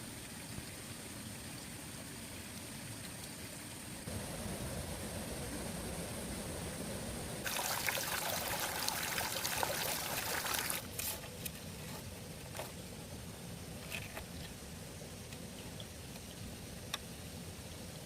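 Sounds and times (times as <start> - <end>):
water trickling and splashing: 7.4 - 12.6.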